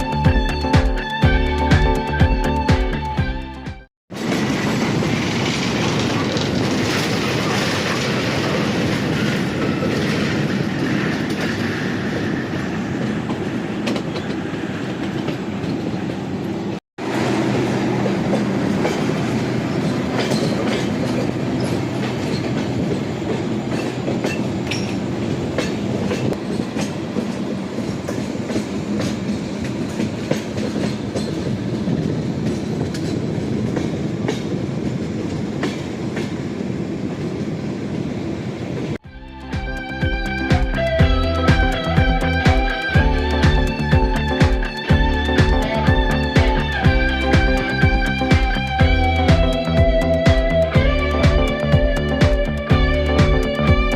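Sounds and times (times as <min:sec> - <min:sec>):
train rumbling: 0:04.1 - 0:53.9
wheels clacking over rail joints: 0:17.2 - 0:36.4.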